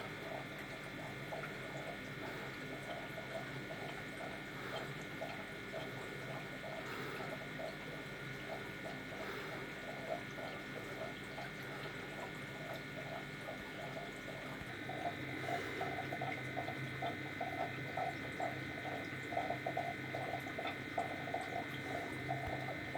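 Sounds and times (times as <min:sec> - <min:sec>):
aquarium pump humming: 0:00.0 - 0:22.9
water bubbling: 0:06.7 - 0:22.9.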